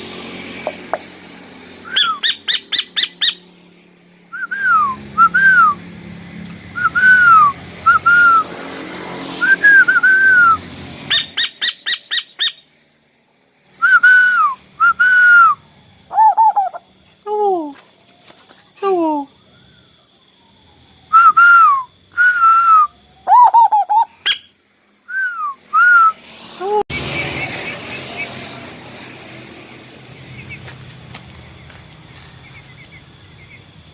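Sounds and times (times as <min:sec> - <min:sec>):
bird whistled notes: 0:01.8 - 0:03.5, 0:04.3 - 0:08.5, 0:09.4 - 0:12.7, 0:13.8 - 0:16.8, 0:19.2 - 0:26.2
bird rapid sharp notes: 0:01.9 - 0:03.5.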